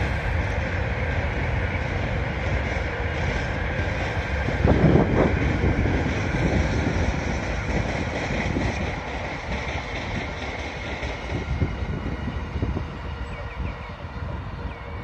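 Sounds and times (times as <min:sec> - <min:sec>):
distant freight train rumbling: 0:00.0 - 0:15.0.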